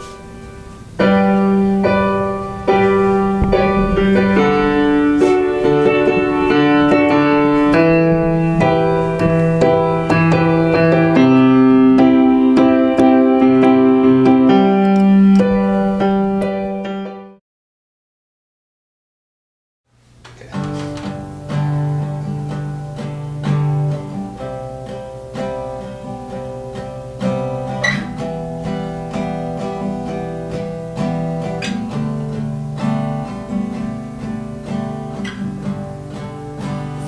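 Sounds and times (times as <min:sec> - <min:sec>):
slow piano chords: 0:00.0 - 0:17.4.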